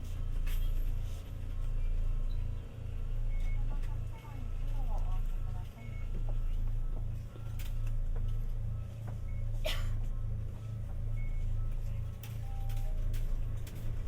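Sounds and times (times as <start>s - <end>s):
light-rail car rumble: 0.0s - 14.0s.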